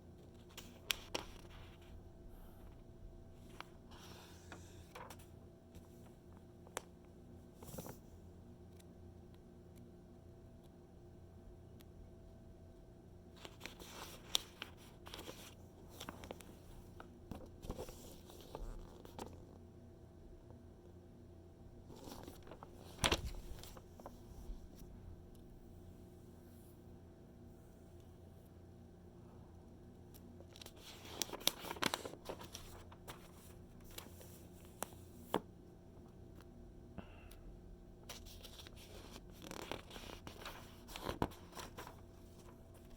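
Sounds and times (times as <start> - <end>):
magazine pages turning and rustling: 0.3 - 2.0, 3.4 - 5.9, 7.6 - 8.1, 13.4 - 19.4, 21.8 - 24.9, 30.2 - 35.5, 38.1 - 42.9
light paper ticks: 3.4 - 8.0, 30.1 - 35.4.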